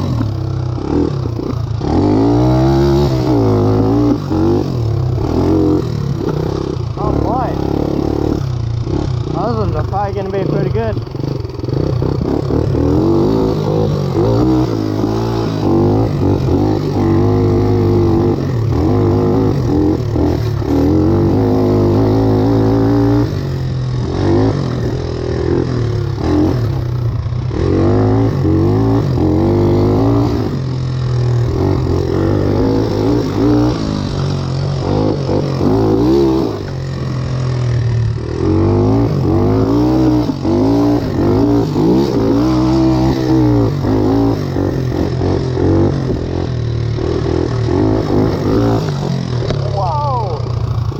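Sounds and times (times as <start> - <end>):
tractor engine revving: 0.0 - 50.9.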